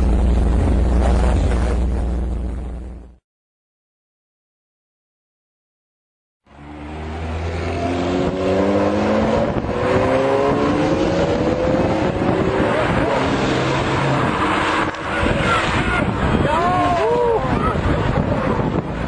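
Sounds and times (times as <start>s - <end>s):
road and wind noise: 0.0s - 3.2s, 6.5s - 19.0s
car engine accelerating: 6.5s - 19.0s.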